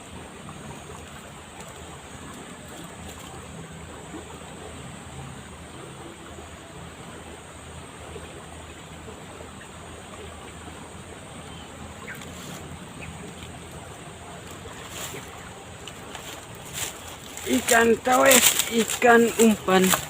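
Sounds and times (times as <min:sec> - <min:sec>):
fast-flowing river rushing: 0:12.0 - 0:20.0.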